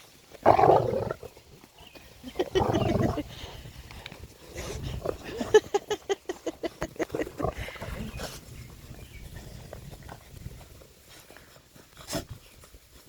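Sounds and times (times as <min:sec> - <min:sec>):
dogs growling: 0:00.4 - 0:01.4, 0:02.3 - 0:03.5, 0:04.5 - 0:05.8, 0:06.9 - 0:08.4.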